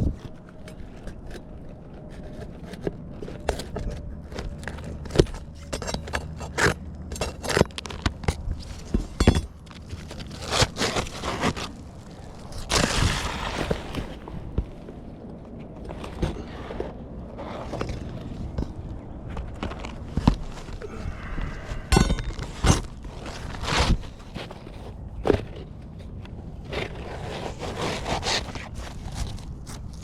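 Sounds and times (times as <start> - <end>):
scraping: 0.0 - 30.0.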